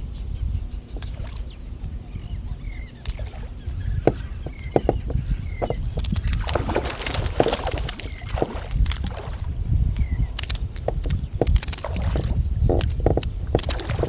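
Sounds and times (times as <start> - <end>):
knocks and clicks on hull: 3.0 - 14.0
water sloshing against kayak: 3.1 - 9.6, 10.4 - 14.0.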